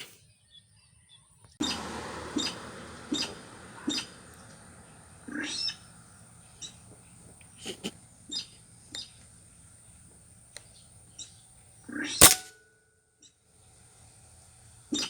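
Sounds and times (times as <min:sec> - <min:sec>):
high bird-like calls: 0:01.6 - 0:09.2
loud sharp burst: 0:12.2 - 0:12.5.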